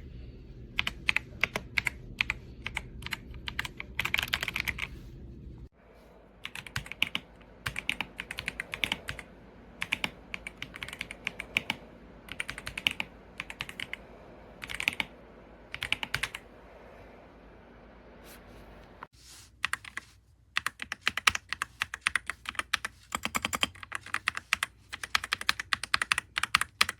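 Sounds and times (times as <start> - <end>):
typing on keyboard: 0.8 - 4.9, 6.4 - 14.0, 14.6 - 15.1, 15.7 - 16.4, 20.6 - 26.9.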